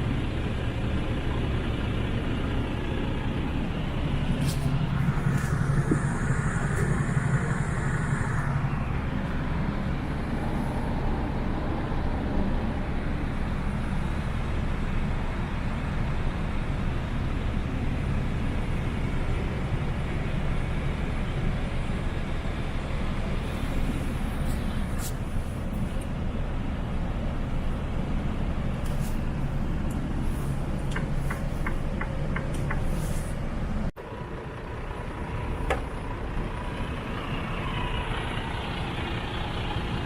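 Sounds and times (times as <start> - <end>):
diesel engine running: 0.0 - 40.0
thin high whine: 4.4 - 11.0.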